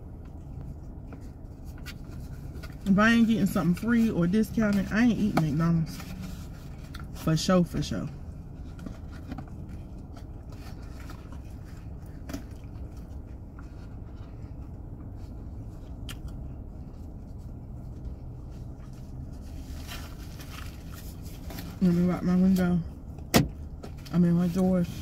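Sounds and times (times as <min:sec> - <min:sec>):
car interior hum: 0:00.0 - 0:25.0
person chewing food: 0:09.5 - 0:15.1.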